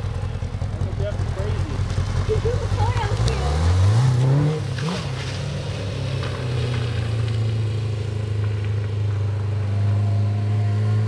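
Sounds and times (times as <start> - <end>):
motorcycle engine running steadily: 0.0 - 3.8.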